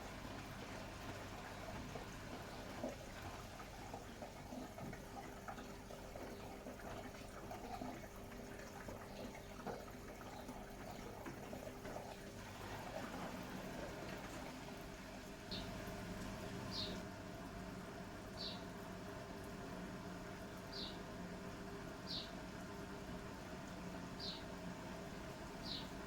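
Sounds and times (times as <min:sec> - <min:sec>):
faint steady hum: 0:00.0 - 0:26.0
washing machine water splashing: 0:00.0 - 0:26.0.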